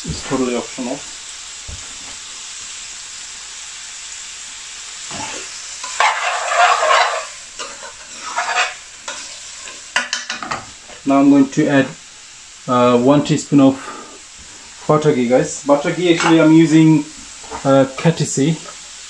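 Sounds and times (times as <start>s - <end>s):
food sizzling in a frying pan: 0.0s - 19.0s
metal spoon scraping food: 5.8s - 9.8s.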